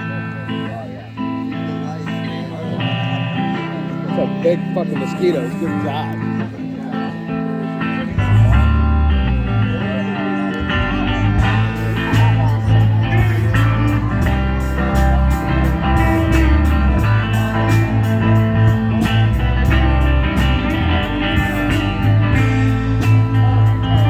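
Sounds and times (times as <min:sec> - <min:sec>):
electric guitar: 0:00.0 - 0:24.0
live band playing: 0:00.0 - 0:24.0.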